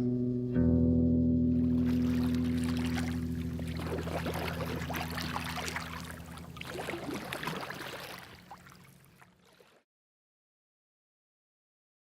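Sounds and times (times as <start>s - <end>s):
low music chord: 0.0s - 6.7s
water splashing and trickling: 1.6s - 9.8s.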